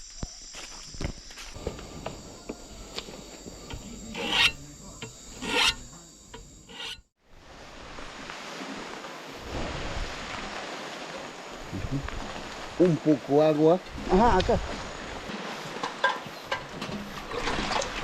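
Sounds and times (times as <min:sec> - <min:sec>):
rasping scrapes: 0:01.6 - 0:07.0.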